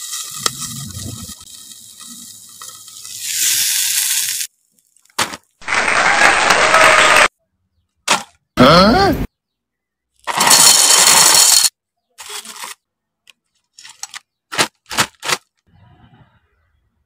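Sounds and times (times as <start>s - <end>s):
loud cooking hiss: 0.0s - 4.5s
sharp cracks: 5.0s - 7.3s.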